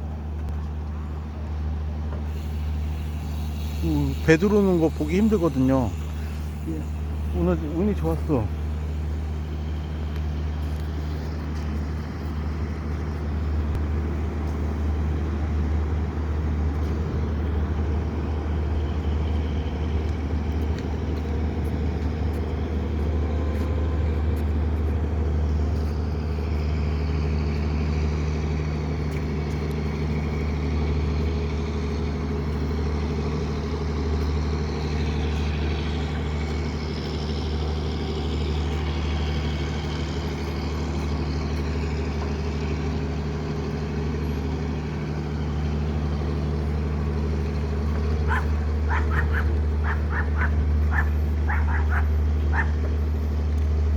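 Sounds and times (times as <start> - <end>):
boat engine drone: 0.0 - 53.9
high whine: 2.2 - 14.9.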